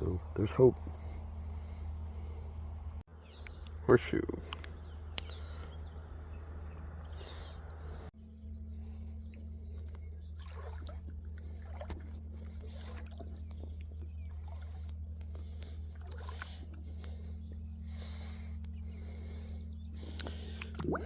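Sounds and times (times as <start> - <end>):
steady low rumble: 0.0 - 21.0
water sloshing and splashing: 8.8 - 21.0.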